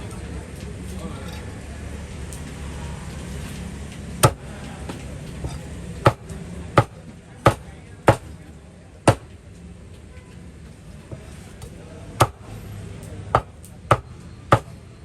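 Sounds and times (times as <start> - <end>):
cleaver chopping meat on board: 4.2 - 8.4, 9.1 - 9.3, 12.2 - 12.5, 13.3 - 14.8.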